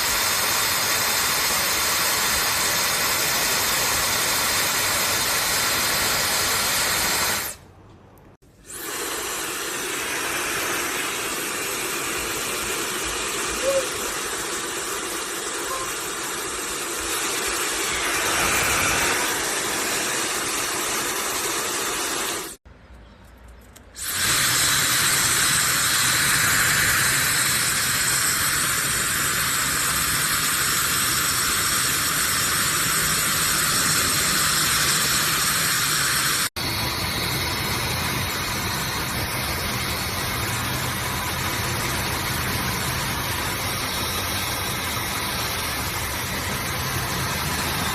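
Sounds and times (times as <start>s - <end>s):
hair dryer running: 8.6s - 22.6s, 31.4s - 47.9s.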